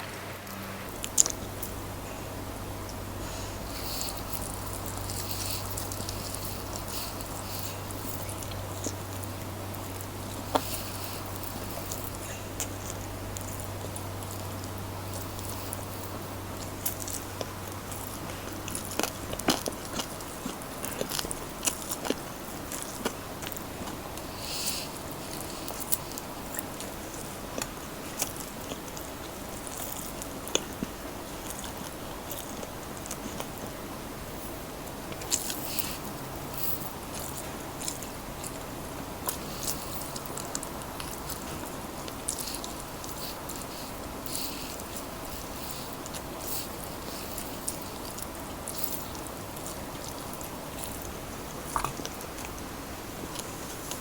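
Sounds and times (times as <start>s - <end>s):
crunchy chicken being chewed: 1.0s - 54.0s.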